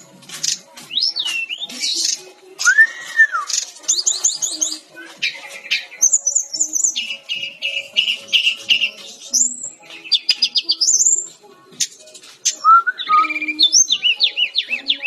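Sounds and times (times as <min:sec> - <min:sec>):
bird singing whistles and trills: 0:00.4 - 0:15.0.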